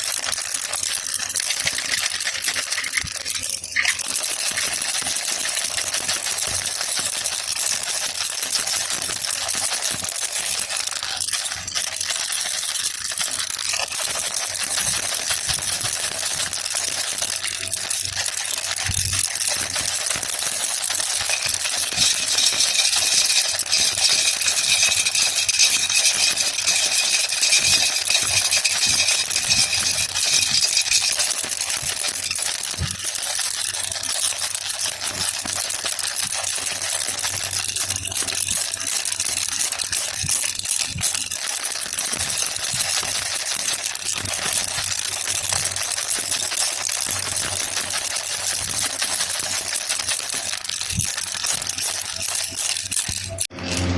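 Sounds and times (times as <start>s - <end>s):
baby rattle shaken: 0.0s - 53.8s
high ringing tone: 21.2s - 31.4s.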